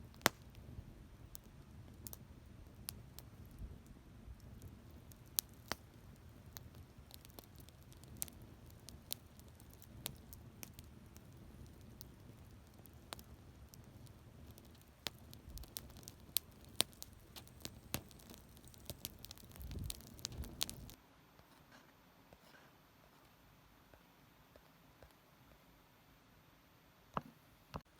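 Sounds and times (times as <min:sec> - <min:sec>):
campfire crackling and popping: 0:00.0 - 0:21.0
low rumble of burning fire: 0:00.0 - 0:21.0.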